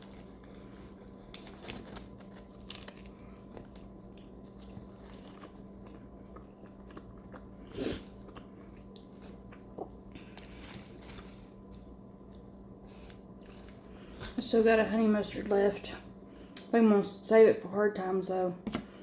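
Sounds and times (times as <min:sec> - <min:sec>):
person chewing food: 0:00.0 - 0:14.4.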